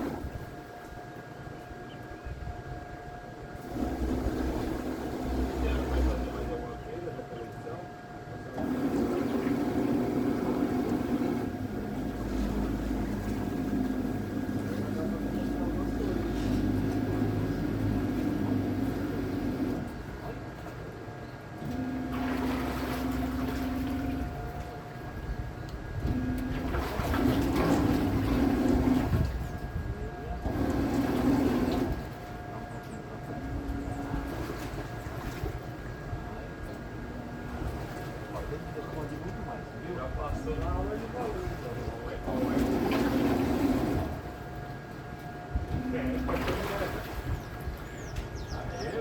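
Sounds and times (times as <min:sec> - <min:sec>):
boat running rush: 0:00.0 - 0:00.6, 0:03.6 - 0:07.2, 0:08.6 - 0:21.0, 0:21.7 - 0:49.0
faint constant whine: 0:00.0 - 0:49.0
faint steady high tone: 0:45.7 - 0:47.1.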